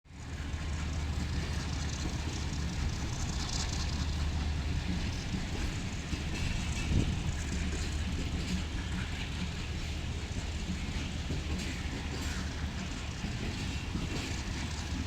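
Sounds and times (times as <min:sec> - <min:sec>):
diesel locomotive humming: 0:00.1 - 0:15.0.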